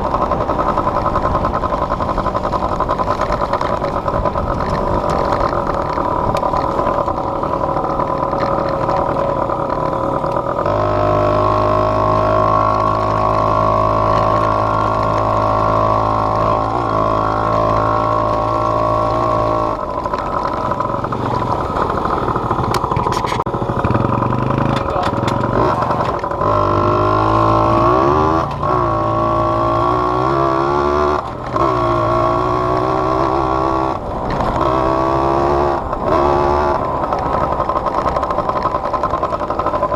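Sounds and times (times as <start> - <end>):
off-road vehicle engine: 0.0 - 39.9.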